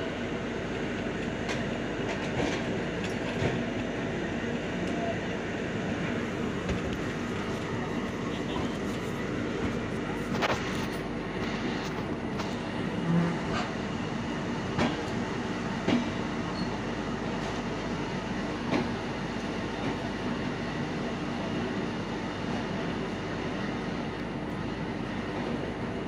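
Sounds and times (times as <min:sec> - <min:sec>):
train coaches running on track: 0:00.0 - 0:26.0
train wheel clacks: 0:14.6 - 0:15.2, 0:15.8 - 0:16.7, 0:18.6 - 0:19.0.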